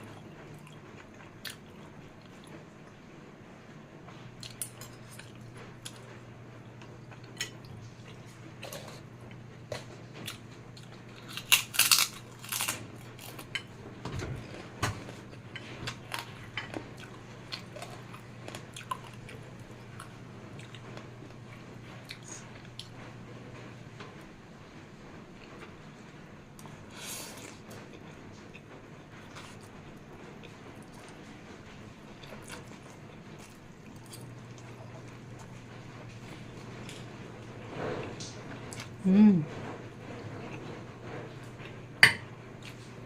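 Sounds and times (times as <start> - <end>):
crunching: 11.1 - 13.5
chewing noodles: 14.4 - 23.0, 32.0 - 39.0.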